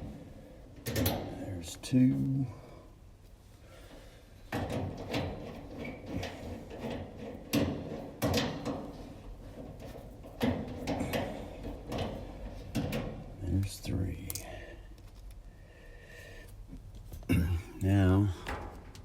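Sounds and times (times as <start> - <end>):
hand tool clattering on metal: 4.5 - 13.5.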